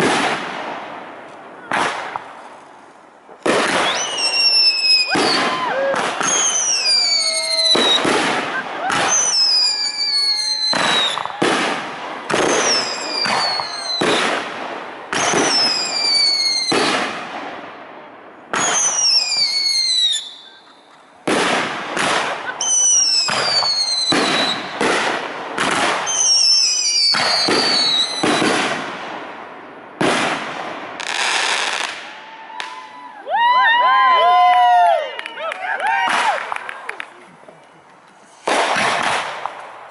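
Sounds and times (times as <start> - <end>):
fireworks booming: 0.0 - 32.8, 38.2 - 39.9
firework whistles sliding down: 3.6 - 11.4, 12.4 - 14.2, 15.2 - 16.8, 18.6 - 21.0, 22.6 - 24.7, 26.1 - 28.5.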